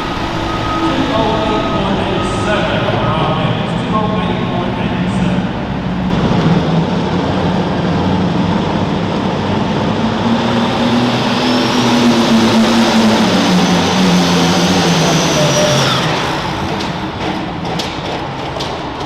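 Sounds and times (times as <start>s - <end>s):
high turbo whistle: 0.0s - 6.1s, 10.6s - 16.7s
diesel tractor engine running hard: 0.0s - 19.0s.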